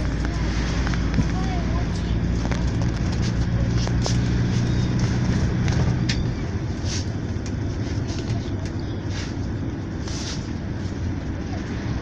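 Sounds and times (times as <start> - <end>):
rattles and clicks: 0.0 - 6.3
engine hum: 0.0 - 12.0
road rumble: 0.0 - 12.0.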